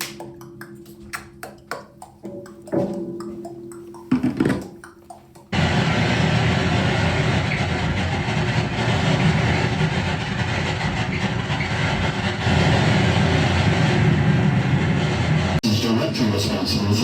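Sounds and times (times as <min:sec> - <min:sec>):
amplified noise music: 0:00.0 - 0:10.2.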